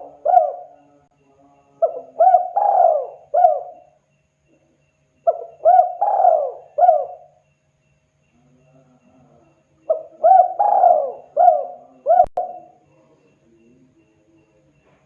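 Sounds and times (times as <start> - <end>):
dove cooing: 0.0 - 1.0, 1.8 - 4.0, 5.2 - 7.4, 9.9 - 12.8.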